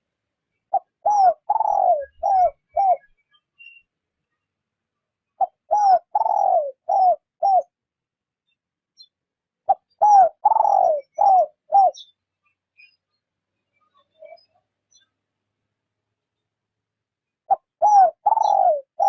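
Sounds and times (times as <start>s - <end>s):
dove cooing: 0.7s - 3.1s, 5.4s - 7.7s, 9.7s - 12.1s, 17.5s - 19.0s.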